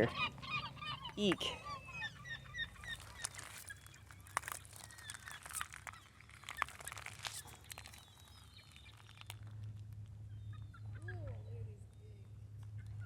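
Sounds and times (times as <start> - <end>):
faint bird calls: 0.0 - 9.6
sharp clicks and crackles: 2.6 - 10.2.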